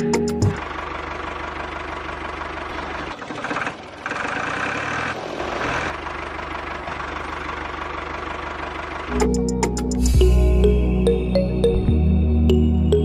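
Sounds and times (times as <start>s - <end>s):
engine idling with rapid knocking: 0.0s - 9.8s.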